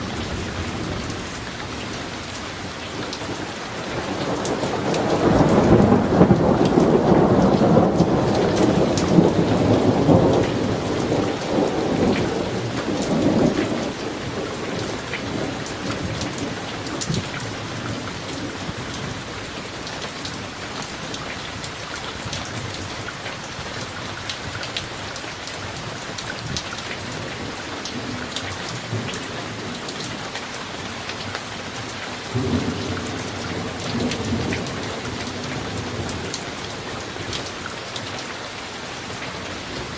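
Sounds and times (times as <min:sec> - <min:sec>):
thunder rumbling: 0:00.0 - 0:21.2, 0:32.3 - 0:38.2
steady rain: 0:00.0 - 0:39.9.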